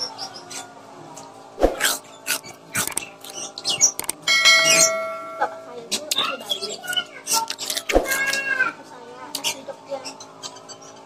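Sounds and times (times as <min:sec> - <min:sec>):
fruit crunching: 0:01.7 - 0:03.4.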